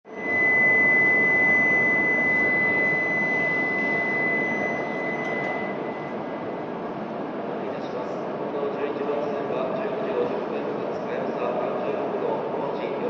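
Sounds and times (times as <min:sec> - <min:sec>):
high whine: 0:00.1 - 0:10.2.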